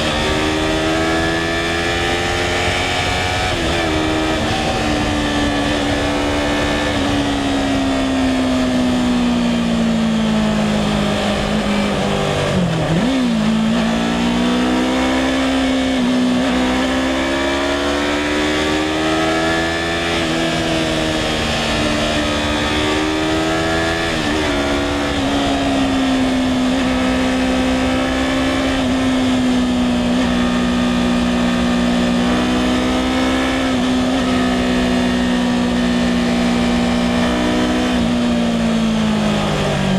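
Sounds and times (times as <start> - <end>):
wind noise: 0.0 - 17.5.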